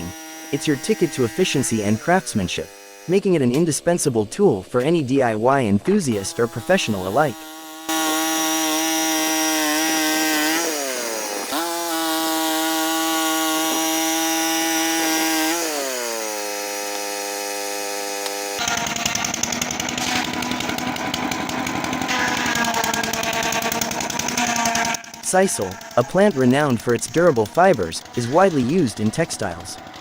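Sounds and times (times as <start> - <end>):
small petrol engine running: 0.0 - 3.2, 6.1 - 30.0
rattling machine with rapid ticks: 18.6 - 30.0.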